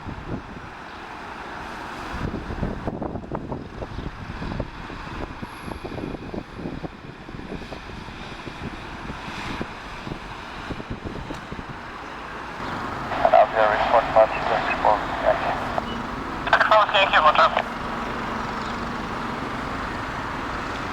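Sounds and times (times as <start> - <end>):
wind buffeting microphone: 2.1 - 12.0
jet engines rumbling: 11.7 - 20.9.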